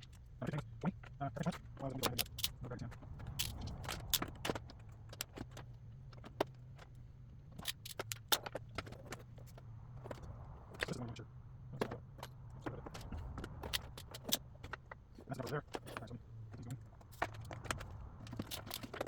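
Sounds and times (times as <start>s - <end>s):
metallic clicks of hand tools: 1.9s - 4.5s, 7.6s - 8.6s, 17.5s - 19.0s.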